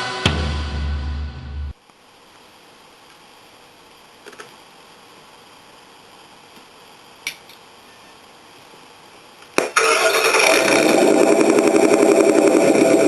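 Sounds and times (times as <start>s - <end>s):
low hiss: 0.0s - 10.0s
simulated engine sound from speaker: 10.0s - 13.0s.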